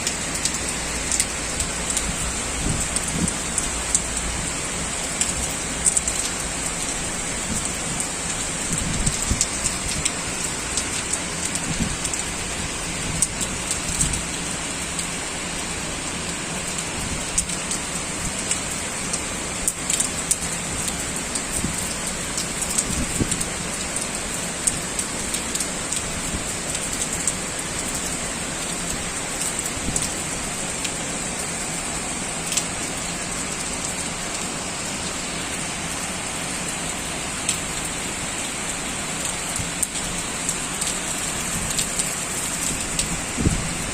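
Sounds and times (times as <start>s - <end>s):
heavy rain hiss: 0.0s - 43.9s
raindrops hitting surface: 0.0s - 43.9s.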